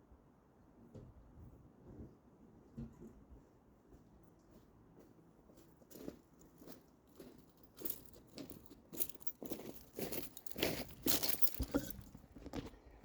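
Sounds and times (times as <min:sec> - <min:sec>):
footsteps crunching: 0:03.9 - 0:12.8.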